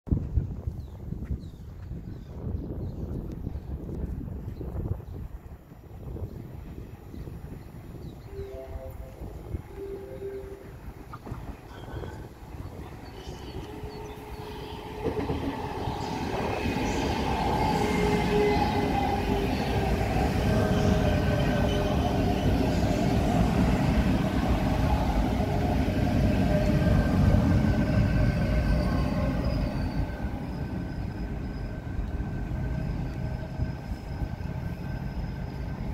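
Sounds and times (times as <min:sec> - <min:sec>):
train wheels rumbling on rail: 0:10.9 - 0:35.9.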